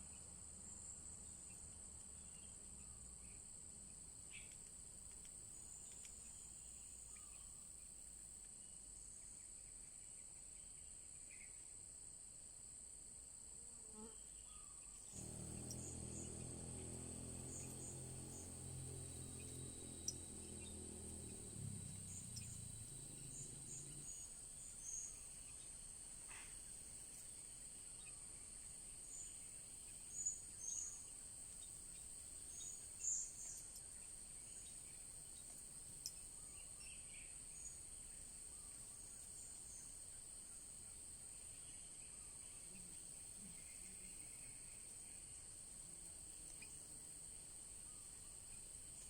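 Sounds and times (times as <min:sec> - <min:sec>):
high-pitched insect drone: 0:15.2 - 0:25.0.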